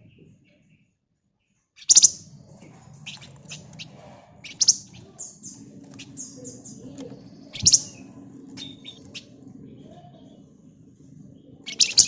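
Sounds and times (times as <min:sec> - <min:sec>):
songbird singing: 0:00.0 - 0:12.0
loud sharp bird calls: 0:01.8 - 0:10.6, 0:11.3 - 0:12.0.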